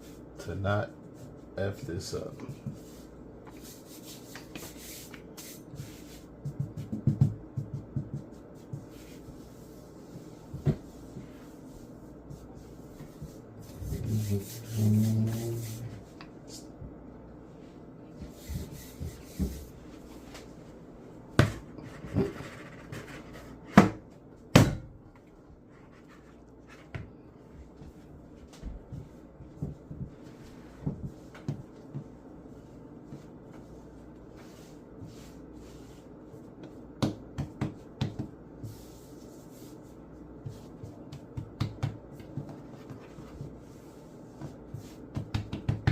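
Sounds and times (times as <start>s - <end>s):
hands rubbing dough: 2.5s - 16.7s, 17.5s - 20.8s, 25.7s - 45.9s
knocks on kitchen counter: 24.6s - 24.9s.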